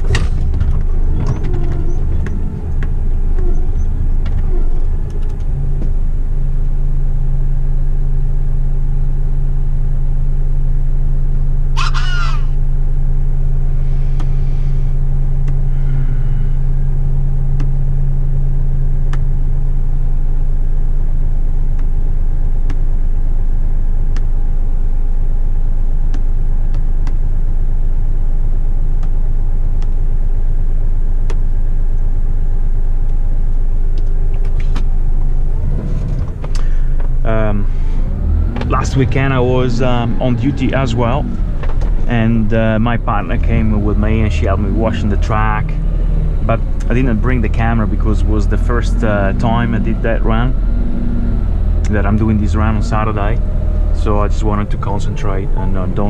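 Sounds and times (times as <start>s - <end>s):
truck diesel engine: 0.0s - 56.0s
high squeak: 3.3s - 4.9s, 11.8s - 12.6s.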